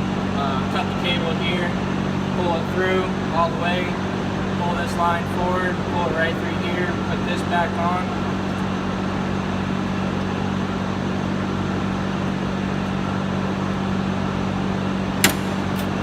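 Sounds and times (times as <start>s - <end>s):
low machine hum: 0.0s - 16.0s
sharp click: 15.2s - 16.0s.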